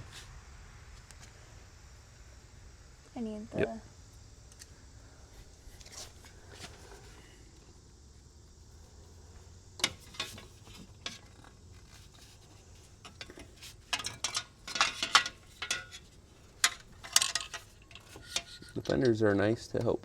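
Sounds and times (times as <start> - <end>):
metal tools clinking: 9.8 - 19.2.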